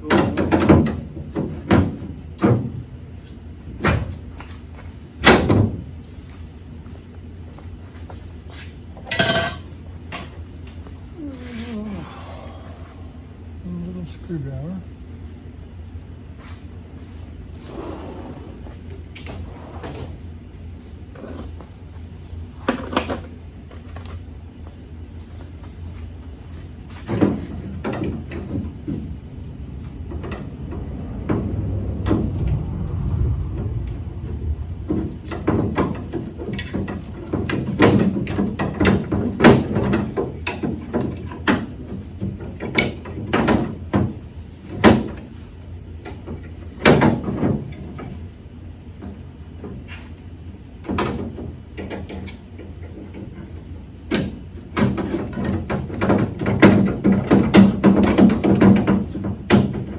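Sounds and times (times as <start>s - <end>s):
low steady hum: 0.0s - 57.3s
metal tools clanking: 9.1s - 10.3s.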